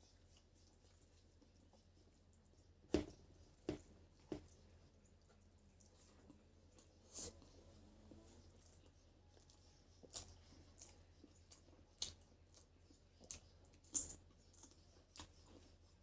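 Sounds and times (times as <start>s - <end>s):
faint low hum: 0.0s - 16.0s
chewing clicks and crunches: 8.6s - 16.0s.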